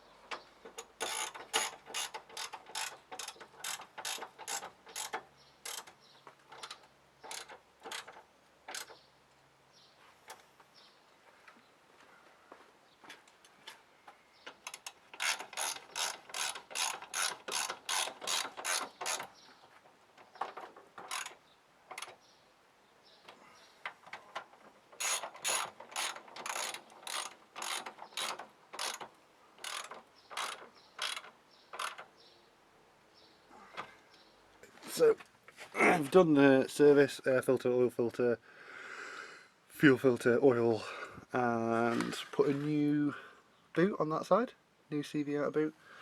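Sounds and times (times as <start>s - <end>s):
ratchet wrench clicking: 0.8s - 6.0s, 6.6s - 8.9s, 14.6s - 19.3s, 21.1s - 22.1s, 25.0s - 32.0s.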